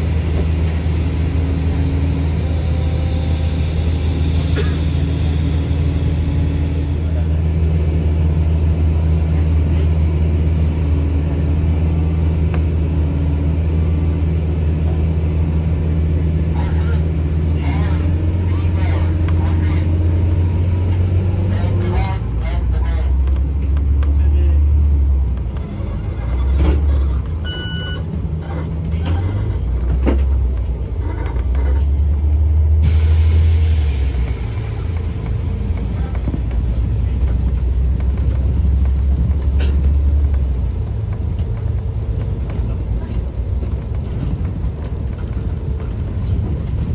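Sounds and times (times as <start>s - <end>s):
low engine drone: 0.0s - 46.9s
electronic beep: 27.4s - 28.1s.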